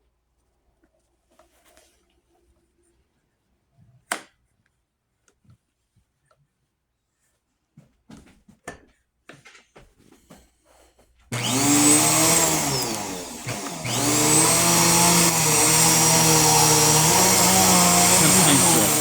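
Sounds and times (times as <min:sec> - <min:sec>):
vacuum cleaner motor whining: 0:11.3 - 0:19.0.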